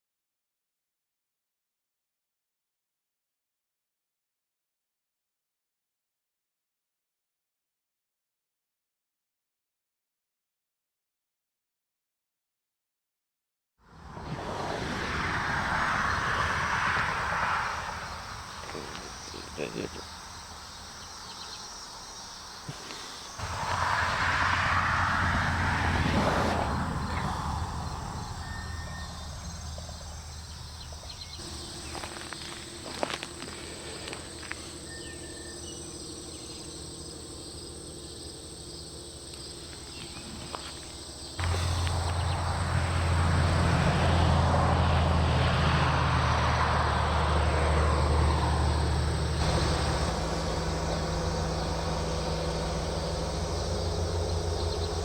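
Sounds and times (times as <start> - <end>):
crickets trilling: 14.9 - 55.0
low hum with rushing noise: 15.6 - 55.0.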